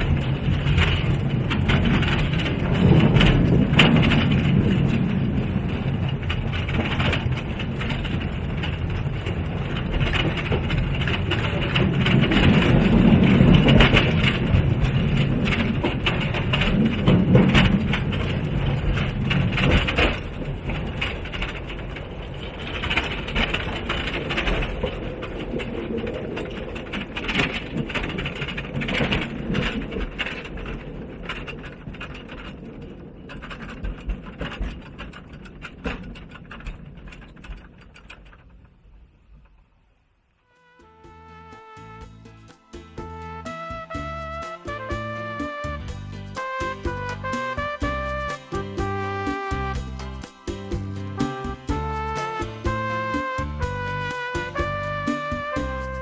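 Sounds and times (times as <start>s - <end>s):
mine trolley train rattling on rails: 0.0s - 38.4s.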